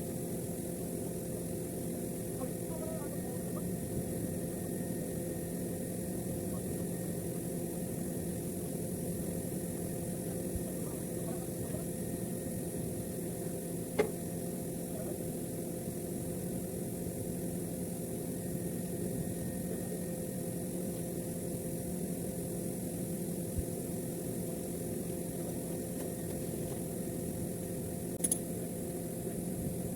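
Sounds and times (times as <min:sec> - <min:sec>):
machinery humming: 0:00.0 - 0:29.9
sharp click: 0:14.0 - 0:14.2, 0:28.2 - 0:28.5.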